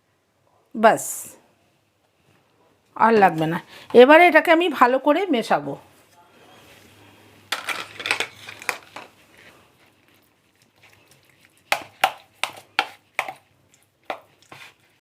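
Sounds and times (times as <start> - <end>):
squelching marinade mixing: 8.6 - 15.0.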